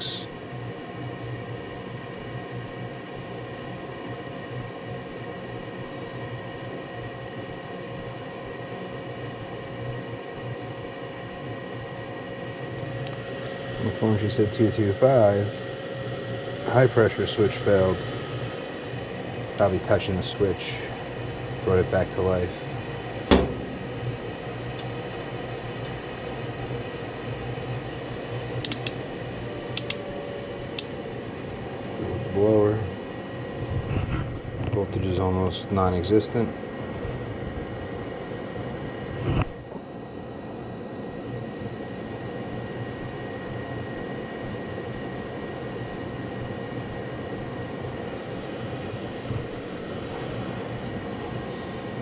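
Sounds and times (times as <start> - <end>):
furnace fan humming: 0.0 - 0.6, 12.0 - 39.1, 41.9 - 52.0
thin steady whine: 0.0 - 52.0
light clicks: 28.6 - 29.0, 29.8 - 30.0.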